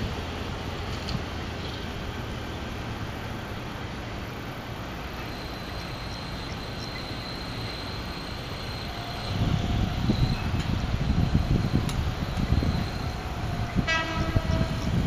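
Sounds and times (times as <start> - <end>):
train rumbling: 0.0 - 15.0
thin high steady tone: 3.7 - 14.2.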